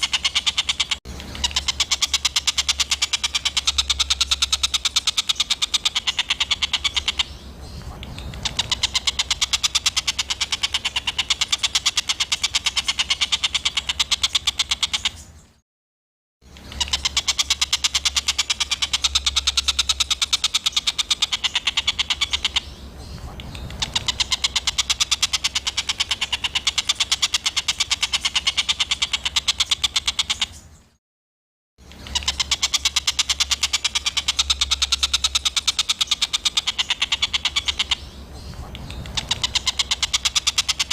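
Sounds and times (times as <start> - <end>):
harsh chattering birdsong: 0.0 - 15.6, 16.4 - 31.0, 31.8 - 40.9
steady low hum: 1.0 - 13.0.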